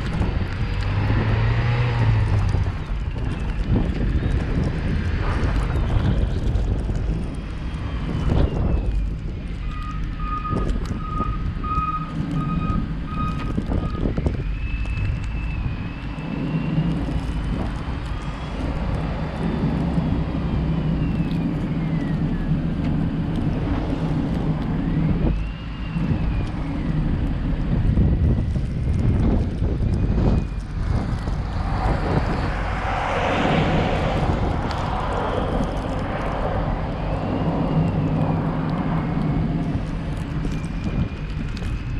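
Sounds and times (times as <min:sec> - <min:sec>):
car engine and road rumble: 0:00.0 - 0:41.9
faint whistle: 0:24.8 - 0:26.9.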